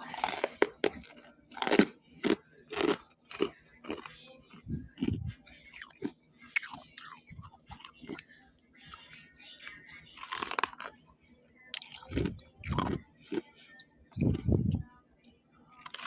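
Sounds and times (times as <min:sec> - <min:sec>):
person chewing crunchy frost: 0:00.0 - 0:08.2, 0:09.6 - 0:11.0, 0:11.7 - 0:13.5, 0:14.1 - 0:14.8, 0:15.8 - 0:16.0.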